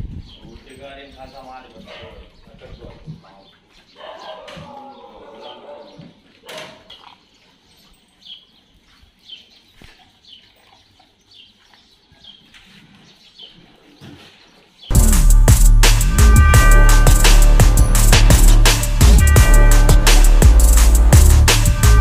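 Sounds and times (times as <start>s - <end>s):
loud music with drums: 14.9s - 22.0s.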